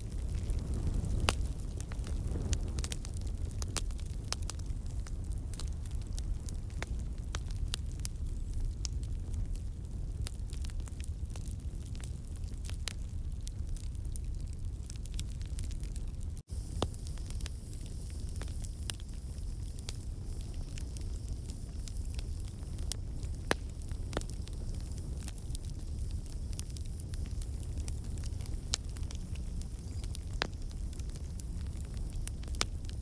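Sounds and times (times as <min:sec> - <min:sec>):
campfire crackling and popping: 0:00.0 - 0:33.0
low rumble of flame: 0:00.0 - 0:33.0.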